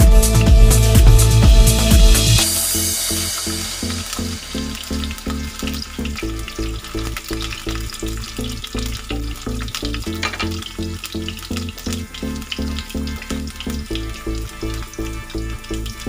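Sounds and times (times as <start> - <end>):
background music with a beat: 0.0 - 8.3
ginger sizzling in a wok: 2.4 - 16.0.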